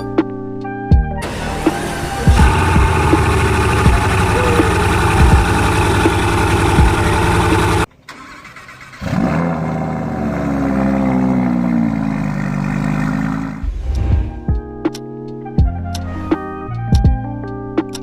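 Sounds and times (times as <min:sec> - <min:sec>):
loud engine running: 0:01.2 - 0:07.9
car engine starting and idling: 0:01.2 - 0:14.0.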